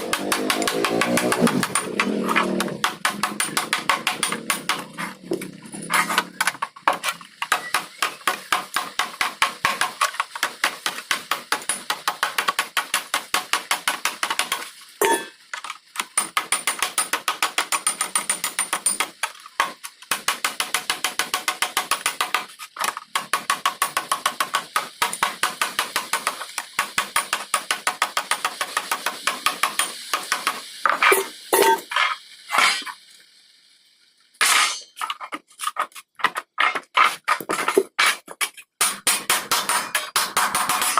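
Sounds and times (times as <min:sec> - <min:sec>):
hammer striking metal: 0:00.0 - 0:06.5, 0:15.0 - 0:15.3, 0:34.4 - 0:34.9, 0:38.8 - 0:40.9.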